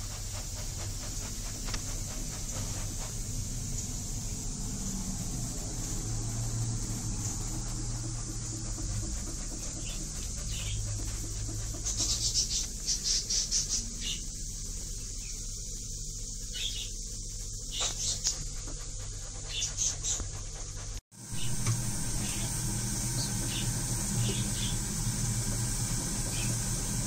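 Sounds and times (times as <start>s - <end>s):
steady low hum: 0.0s - 27.0s
bird chirping: 16.4s - 17.0s.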